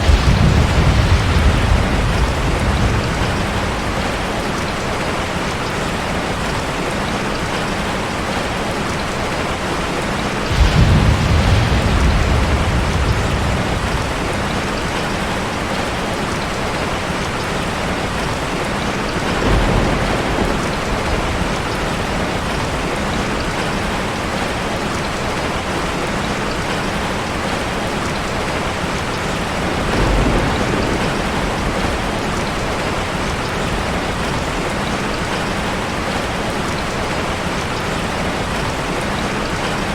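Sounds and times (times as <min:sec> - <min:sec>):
low rumble: 0:00.0 - 0:04.7, 0:10.5 - 0:14.7
rush of falling water: 0:00.0 - 0:39.9.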